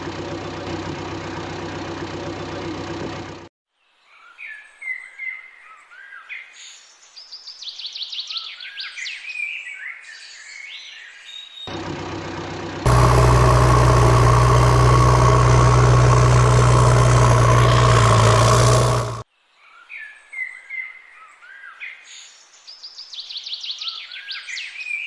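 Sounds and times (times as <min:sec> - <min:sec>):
loud steady engine: 0:00.0 - 0:03.5, 0:11.7 - 0:19.2.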